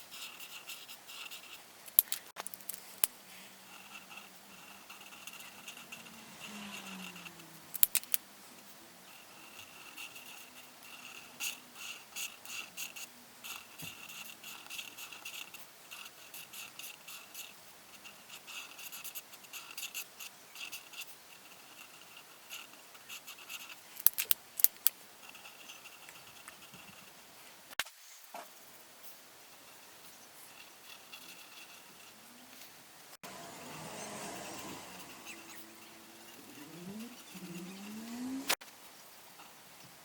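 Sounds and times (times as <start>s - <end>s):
coloring strokes scratching paper: 0.0s - 24.3s, 25.2s - 27.2s, 29.5s - 32.6s, 33.2s - 38.6s
sharp clicks: 1.9s - 3.1s, 7.7s - 8.2s, 24.0s - 25.0s.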